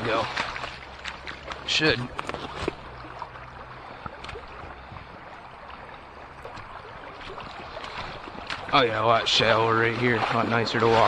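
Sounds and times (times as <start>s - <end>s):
water splashing around legs: 0.0s - 11.0s.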